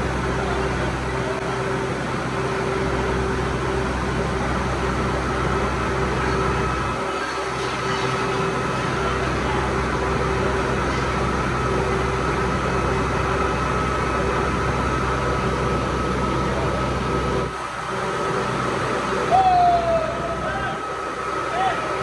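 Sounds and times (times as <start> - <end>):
workshop machine motor hum: 0.0 - 22.0.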